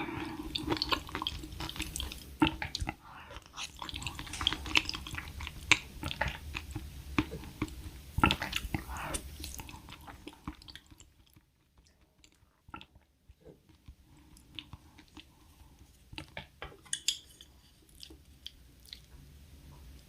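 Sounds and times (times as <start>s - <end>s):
person chewing: 0.0s - 13.0s, 17.4s - 19.1s.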